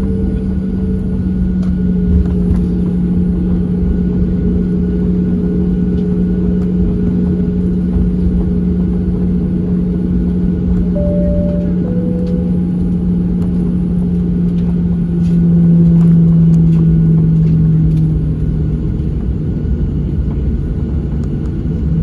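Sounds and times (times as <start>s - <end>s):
brief high tone: 11.0s - 13.2s.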